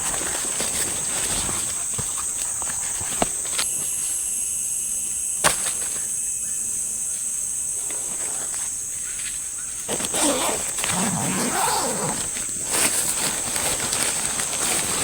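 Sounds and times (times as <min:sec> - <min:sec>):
night insects chirping: 0:00.0 - 0:15.0
higher insect tone: 0:00.3 - 0:13.2.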